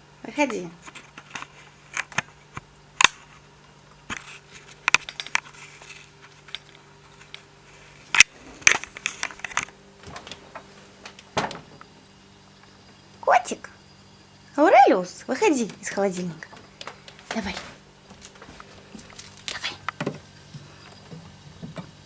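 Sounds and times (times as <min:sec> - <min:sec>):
steady low hum: 0:00.0 - 0:22.0
things shifting in refrigerator: 0:08.2 - 0:11.9, 0:15.4 - 0:22.0.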